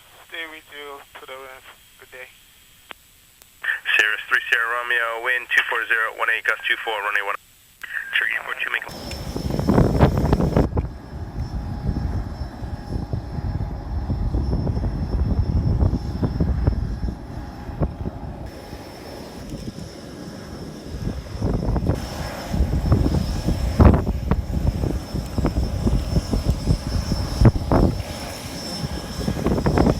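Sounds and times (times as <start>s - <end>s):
small plane engine rumbling: 7.8s - 29.9s.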